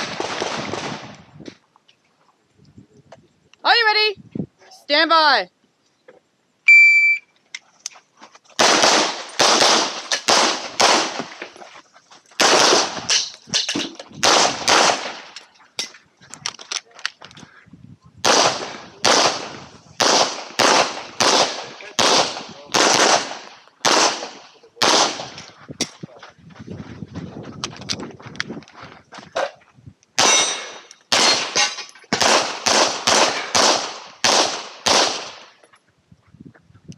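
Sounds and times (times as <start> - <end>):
handgun shots: 30.2 - 35.4.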